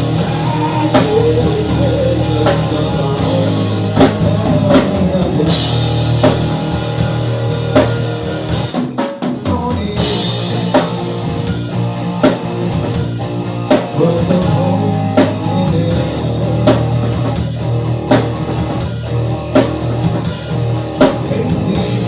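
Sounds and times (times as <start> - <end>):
rock music with drums and guitar: 0.0 - 22.0.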